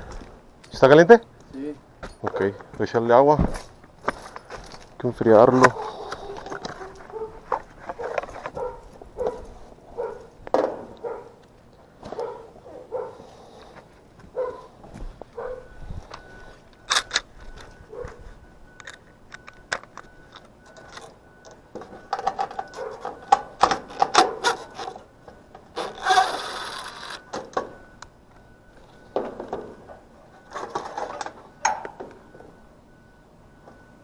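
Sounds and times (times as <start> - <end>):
hand tools clicking and tapping metal: 5.6 - 9.6, 18.8 - 28.1.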